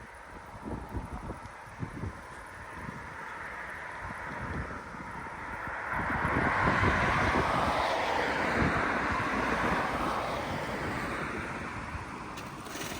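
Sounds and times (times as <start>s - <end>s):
wind buffeting microphone: 0.0s - 12.9s
storm wind gust: 4.1s - 12.9s.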